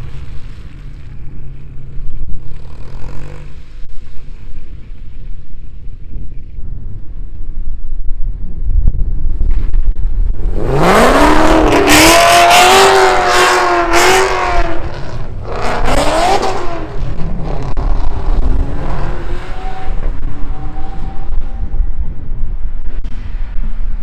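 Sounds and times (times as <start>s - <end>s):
car engine accelerating hard: 10.4s - 22.3s.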